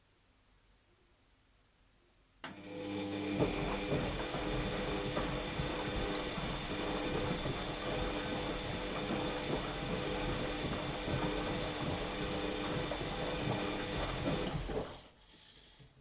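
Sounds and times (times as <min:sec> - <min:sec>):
washing machine motor humming: 0:02.5 - 0:15.2.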